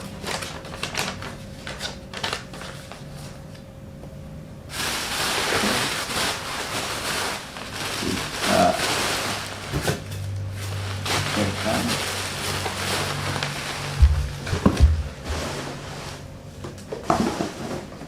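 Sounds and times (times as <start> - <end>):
packaging clicks and rustles: 0.0 - 3.0.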